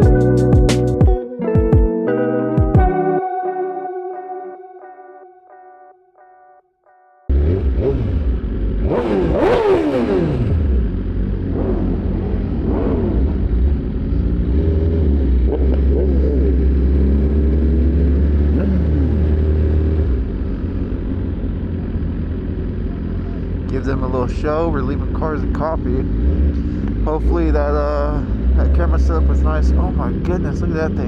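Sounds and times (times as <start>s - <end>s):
vehicle engines revving: 7.3s - 31.0s.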